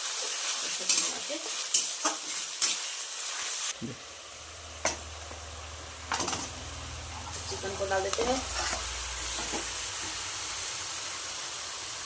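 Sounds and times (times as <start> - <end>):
food sizzling in hot oil: 0.0 - 12.0
spatula scraping a pan: 8.2 - 10.2.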